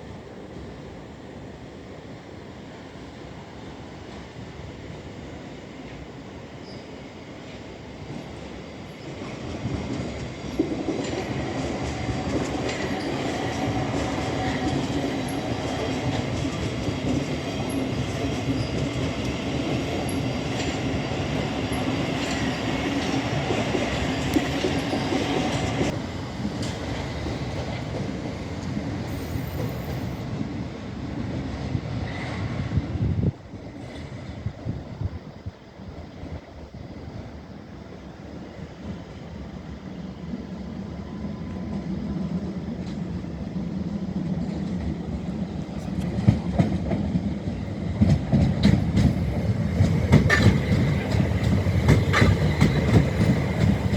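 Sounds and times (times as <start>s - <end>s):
electric train passing: 0.0s - 53.9s
train motor whine: 21.7s - 30.2s
wheels clattering on rails: 44.2s - 53.9s.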